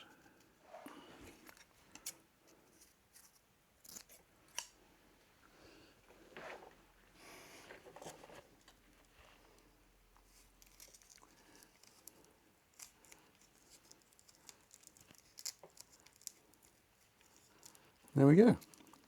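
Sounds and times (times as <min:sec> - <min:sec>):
tape peeling: 0:10.4 - 0:17.9
fingers picking at fabric tape: 0:12.7 - 0:17.8.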